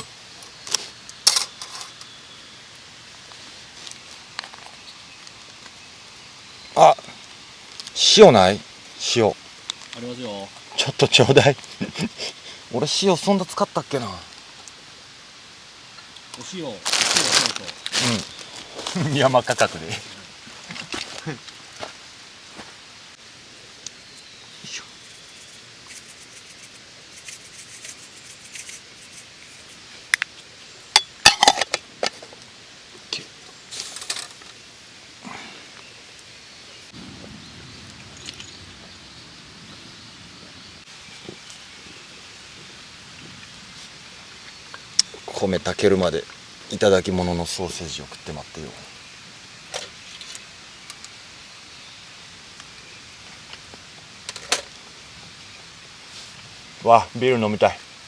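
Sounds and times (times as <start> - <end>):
campfire hissing: 0.0 - 58.0
fire crackles: 0.0 - 58.0
camp cooking gear clicking and tapping: 0.3 - 2.1, 25.2 - 32.5, 49.7 - 51.2, 52.6 - 54.9
packaging rustling: 16.8 - 20.2.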